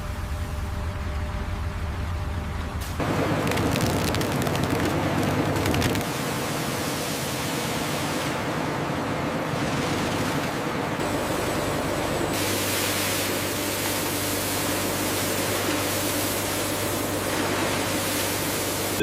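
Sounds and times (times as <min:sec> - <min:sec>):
low hum: 0:00.0 - 0:06.1
processing machinery hissing: 0:09.5 - 0:19.0.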